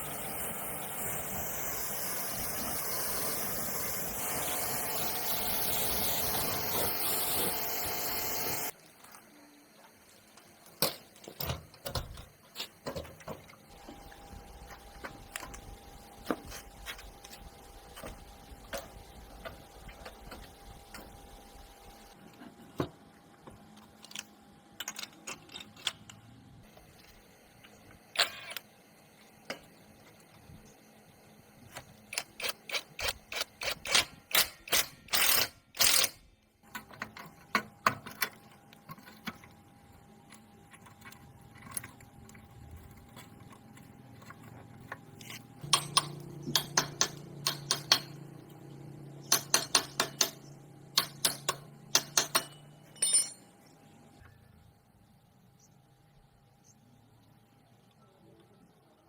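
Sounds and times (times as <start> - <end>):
metal tools clicking and clinking: 24.0 - 26.2, 43.0 - 48.2, 51.0 - 53.6.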